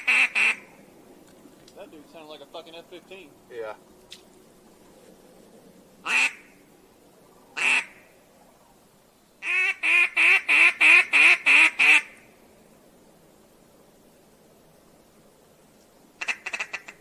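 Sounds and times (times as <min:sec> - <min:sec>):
duck call quacks: 0:00.0 - 0:00.6, 0:06.1 - 0:06.5, 0:07.6 - 0:08.0, 0:09.4 - 0:12.2, 0:16.2 - 0:17.0.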